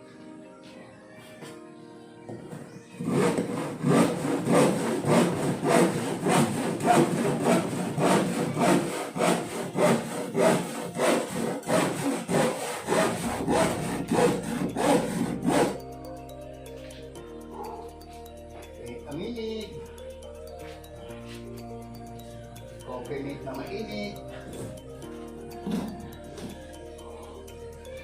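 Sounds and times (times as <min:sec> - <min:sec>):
hand saw cutting wood: 0:03.0 - 0:15.8.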